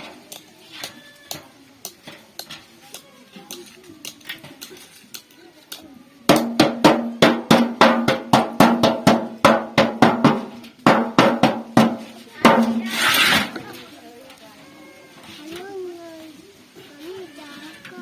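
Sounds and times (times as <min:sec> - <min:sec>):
hammer beating sheet metal: 0:06.3 - 0:13.5.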